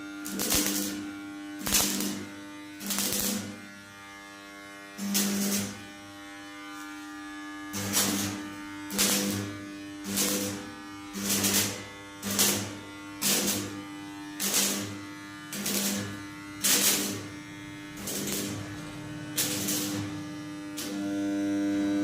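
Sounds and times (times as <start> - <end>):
electric machine buzzing: 0.0 - 22.0.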